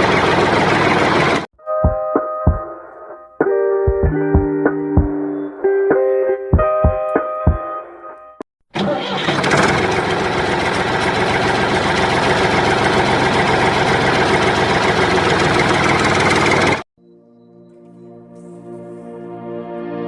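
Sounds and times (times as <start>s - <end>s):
engine running steadily: 0.0s - 1.5s, 8.8s - 16.8s.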